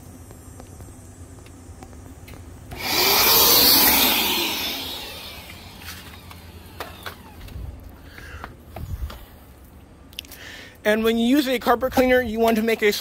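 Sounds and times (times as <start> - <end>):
vacuum cleaner motor whine: 2.7 - 7.6.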